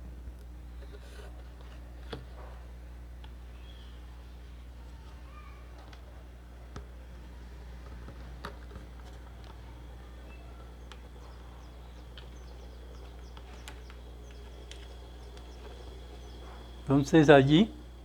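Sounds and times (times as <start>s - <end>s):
steady low hum: 0.0s - 18.0s
faint high chirping: 3.5s - 5.8s, 9.2s - 18.0s.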